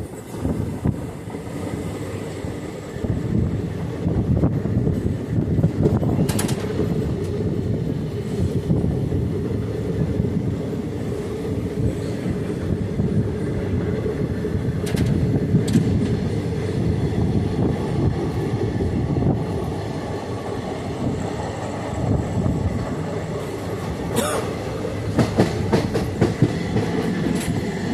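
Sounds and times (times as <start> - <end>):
train carriages rumbling on track: 0.0 - 27.9
wheels clicking over rail joints: 5.7 - 7.4, 14.7 - 16.2.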